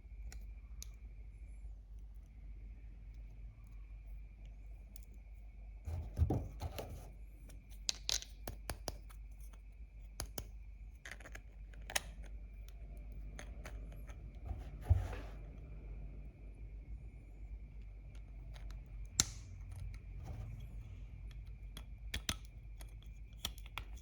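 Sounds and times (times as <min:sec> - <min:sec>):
soft thud: 0:14.5 - 0:15.4.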